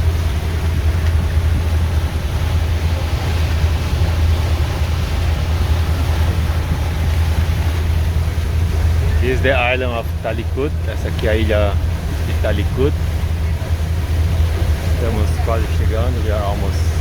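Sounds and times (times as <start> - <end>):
wind rushing: 0.0 - 9.6
boat engine droning: 0.0 - 17.0
water rushing: 0.0 - 17.0.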